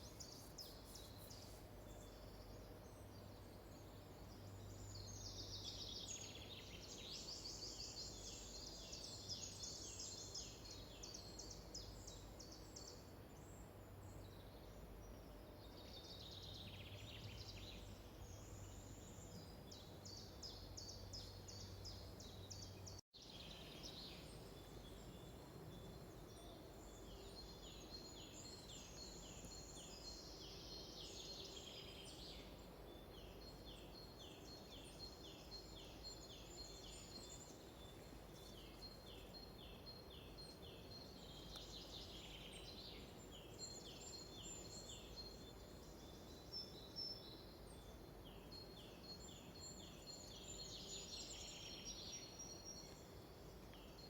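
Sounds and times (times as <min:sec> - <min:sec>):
faint songbirds singing: 0:00.0 - 0:54.0
low steady background noise: 0:00.0 - 0:54.0.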